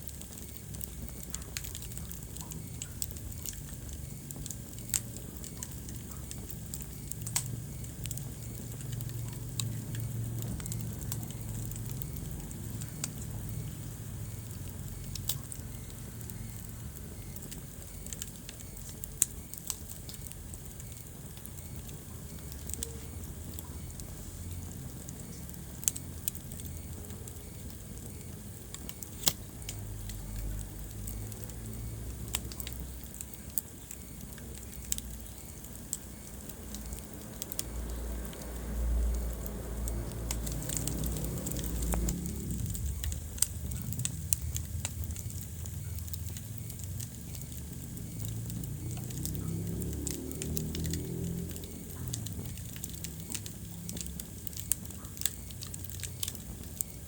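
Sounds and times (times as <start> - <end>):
low rumble of flames: 0.0 - 57.0
wood fire crackling: 0.0 - 57.0.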